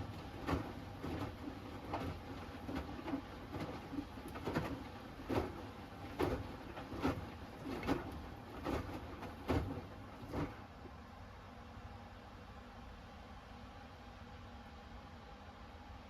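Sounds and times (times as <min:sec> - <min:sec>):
laundry tumbling in washing machine: 0:00.0 - 0:11.0
washing machine motor hum: 0:00.0 - 0:16.0.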